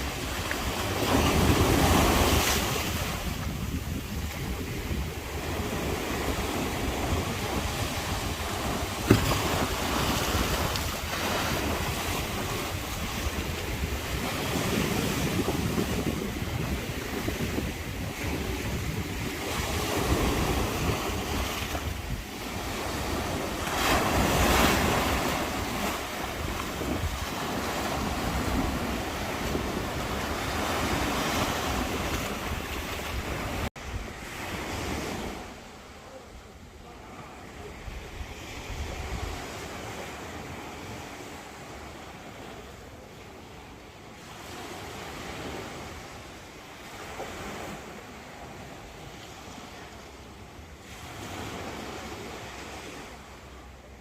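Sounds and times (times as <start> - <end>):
wind buffeting microphone: 0.0 - 35.4
sea waves washing in: 0.0 - 54.0.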